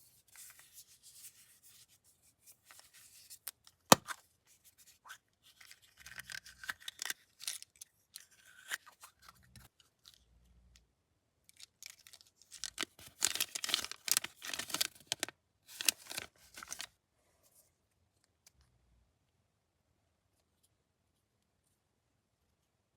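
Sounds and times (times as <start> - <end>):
plastic candy wrapper crinkling: 5.5 - 10.2, 11.5 - 16.9.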